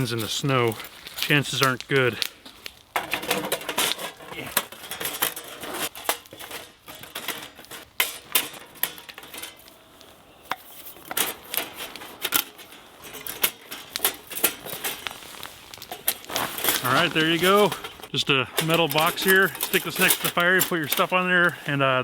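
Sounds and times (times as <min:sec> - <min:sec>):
sheet metal clicks and clinks: 0:03.0 - 0:09.8, 0:10.5 - 0:15.1, 0:15.8 - 0:21.6.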